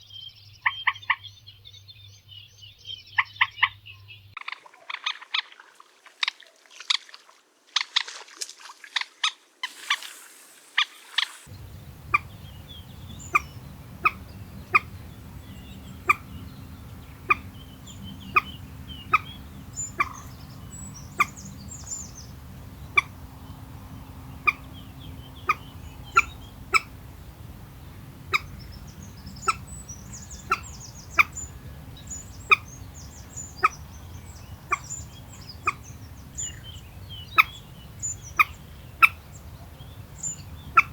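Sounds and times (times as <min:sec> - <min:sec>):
moorhen calling: 0:02.8 - 0:07.1, 0:09.0 - 0:40.9
low background rumble: 0:11.5 - 0:40.9.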